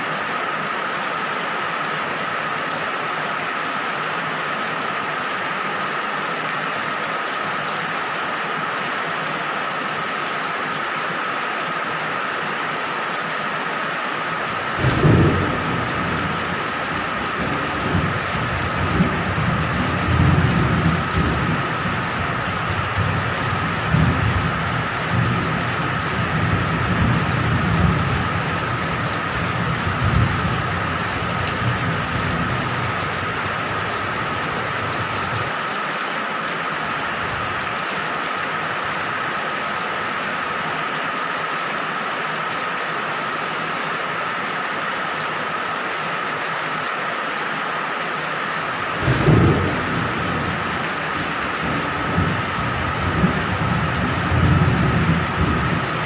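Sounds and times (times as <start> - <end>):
steady rain: 0.0 - 56.0
thunder rumbling: 14.6 - 35.5, 48.9 - 56.0.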